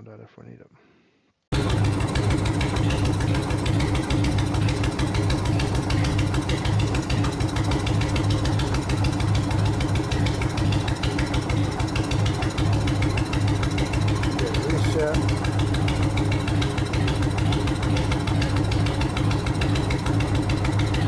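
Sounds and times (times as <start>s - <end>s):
car engine idling: 1.5s - 21.0s.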